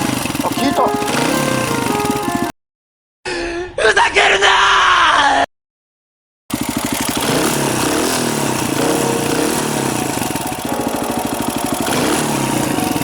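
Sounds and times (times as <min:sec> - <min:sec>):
motorcycle engine running: 0:00.0 - 0:02.5, 0:06.5 - 0:13.0.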